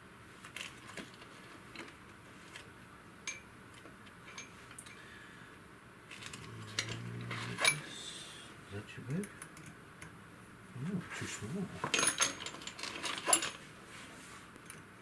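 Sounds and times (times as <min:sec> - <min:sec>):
metal parts and tools clinking: 0:04.2 - 0:05.0, 0:06.1 - 0:07.9, 0:11.8 - 0:13.6.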